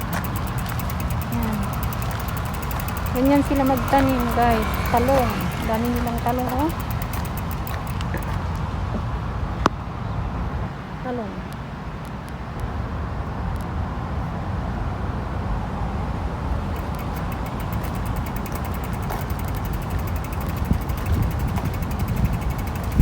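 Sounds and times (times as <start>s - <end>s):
fast even ticking: 0.0s - 8.4s, 16.5s - 23.0s
wind rumbling on microphone: 0.0s - 23.0s.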